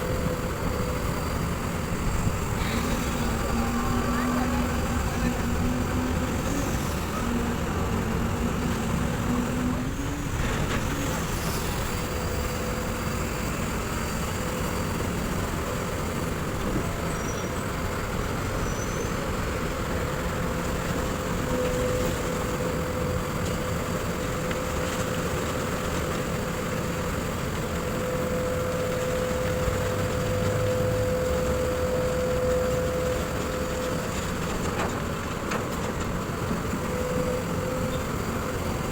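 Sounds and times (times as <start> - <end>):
steady whine: 0.0 - 14.7
excavator diesel engine running: 0.0 - 38.9.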